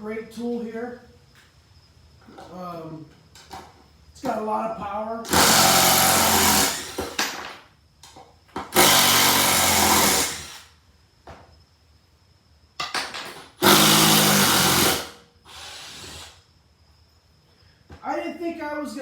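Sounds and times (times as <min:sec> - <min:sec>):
cordless impact driver: 0:05.3 - 0:07.3, 0:08.6 - 0:10.7, 0:13.6 - 0:16.4.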